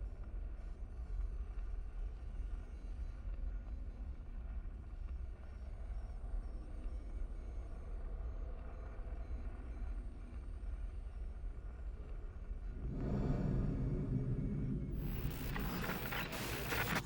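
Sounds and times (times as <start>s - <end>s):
low rumbling drone: 12.6s - 17.0s.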